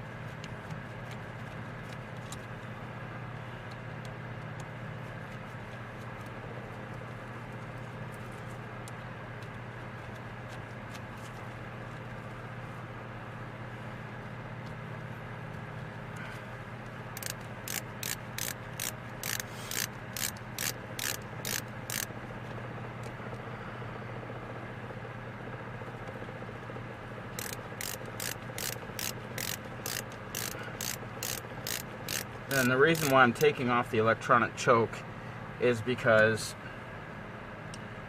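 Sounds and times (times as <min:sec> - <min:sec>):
steady low hum: 0:00.0 - 0:38.0
hand ratchet clicking: 0:17.2 - 0:22.1, 0:27.4 - 0:33.4.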